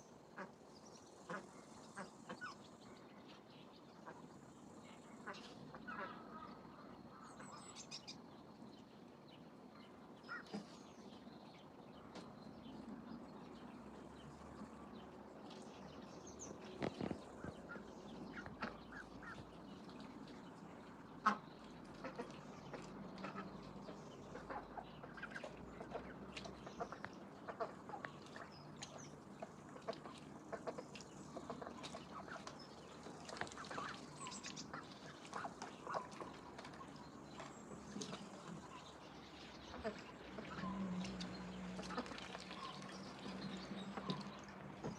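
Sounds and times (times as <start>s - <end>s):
ducks calling: 16.4s - 19.6s, 21.2s - 44.9s.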